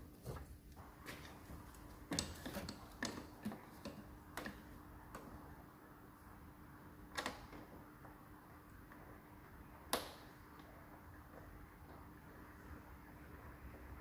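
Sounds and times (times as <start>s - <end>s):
faint steady hum: 0.0s - 14.0s
tools clicking and knocking: 2.1s - 4.6s.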